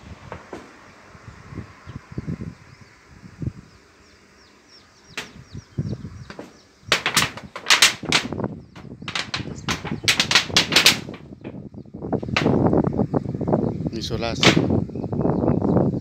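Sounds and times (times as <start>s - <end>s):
loud knocks and clattering: 5.1s - 5.6s, 6.2s - 11.6s, 12.2s - 12.7s, 14.4s - 14.7s.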